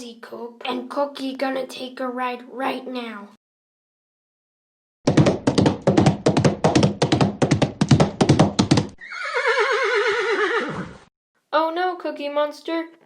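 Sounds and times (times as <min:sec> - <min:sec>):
horse hoofbeats clip-clop: 0:05.1 - 0:09.0
horse neighing: 0:09.0 - 0:11.1.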